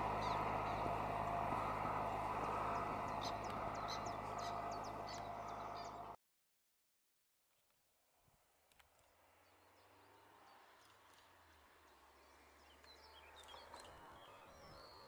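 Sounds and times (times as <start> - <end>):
low steady hum: 0.0 - 6.2.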